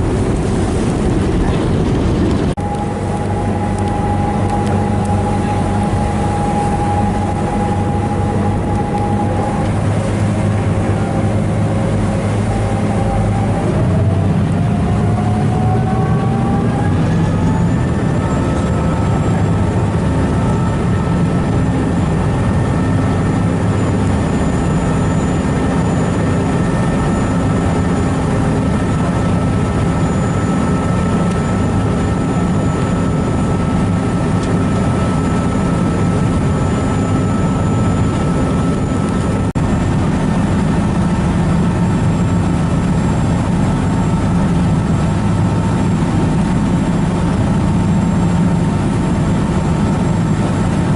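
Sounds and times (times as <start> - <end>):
faint engine whine: 0.0 - 50.9
ferry engine drone: 0.0 - 50.9.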